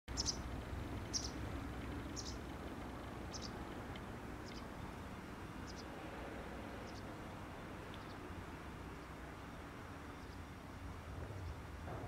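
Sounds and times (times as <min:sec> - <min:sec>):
bird chirping: 0:00.1 - 0:02.5, 0:03.2 - 0:03.8, 0:04.4 - 0:05.9, 0:06.7 - 0:07.2, 0:07.9 - 0:08.3, 0:08.9 - 0:11.7
steady low rumble: 0:00.1 - 0:12.0.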